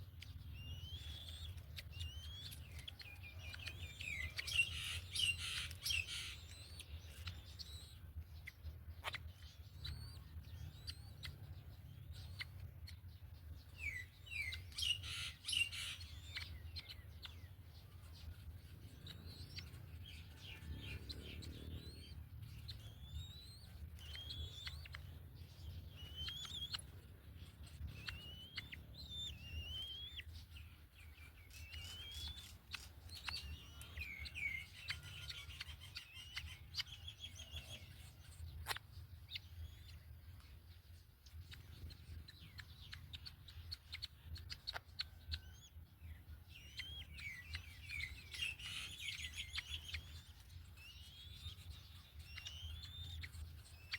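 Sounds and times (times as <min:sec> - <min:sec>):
birds chattering: 0:00.0 - 0:53.9
birds chirping: 0:00.0 - 0:53.9.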